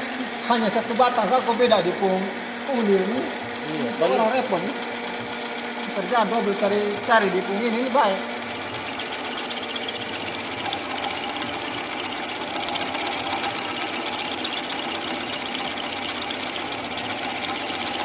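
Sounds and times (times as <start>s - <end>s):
metal lathe running: 0.0s - 18.0s
fast fine ticking: 3.4s - 18.0s.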